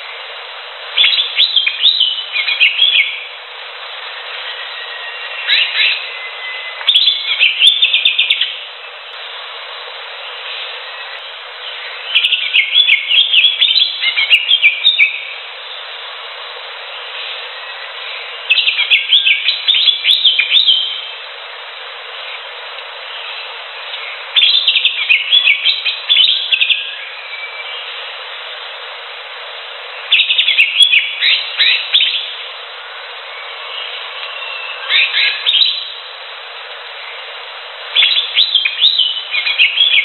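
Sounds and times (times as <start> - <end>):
steady hiss: 0.0 - 40.0
bird singing rapid phrases: 1.0 - 3.3, 5.4 - 8.6, 10.5 - 15.3, 17.2 - 21.1, 23.1 - 27.9, 30.0 - 32.4, 33.3 - 36.0, 38.0 - 40.0.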